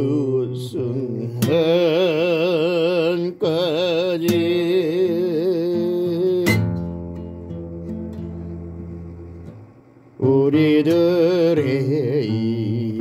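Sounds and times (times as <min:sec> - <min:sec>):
person singing with vibrato: 0:00.0 - 0:06.8, 0:10.2 - 0:13.0.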